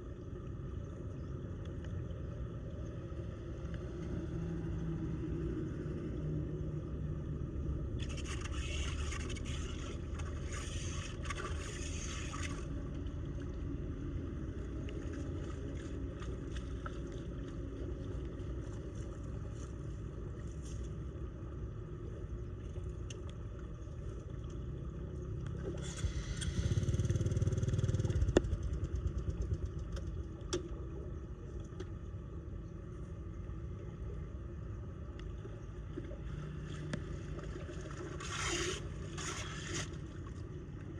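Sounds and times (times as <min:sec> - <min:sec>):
water draining with low rumble: 0:00.0 - 0:40.9
scraping and splashing: 0:08.0 - 0:12.8, 0:36.4 - 0:40.5.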